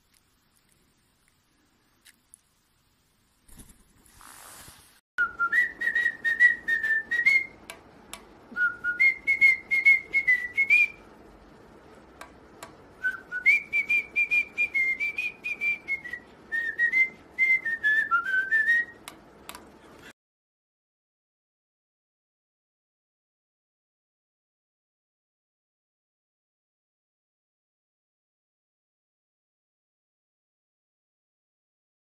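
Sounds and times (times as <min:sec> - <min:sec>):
parrot whistling a tune: 0:05.2 - 0:07.6, 0:08.6 - 0:11.0, 0:13.0 - 0:19.0.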